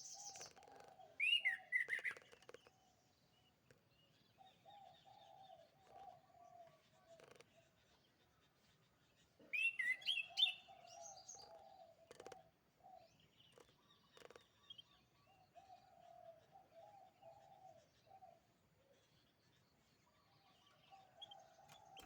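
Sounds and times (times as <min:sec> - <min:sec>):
canary singing: 0:09.5 - 0:12.3.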